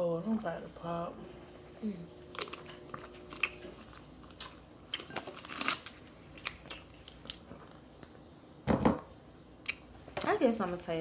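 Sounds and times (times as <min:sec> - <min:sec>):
food crunching: 0:02.2 - 0:08.2
chewing: 0:02.3 - 0:08.2.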